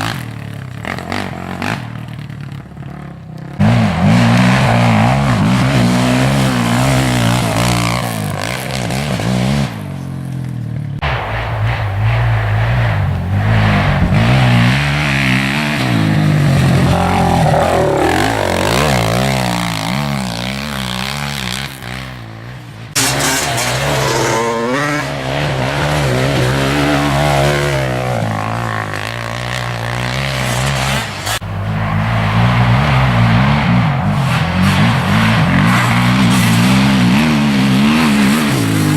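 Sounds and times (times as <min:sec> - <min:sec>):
quad bike engine revving: 0:00.0 - 0:10.8, 0:13.1 - 0:38.9.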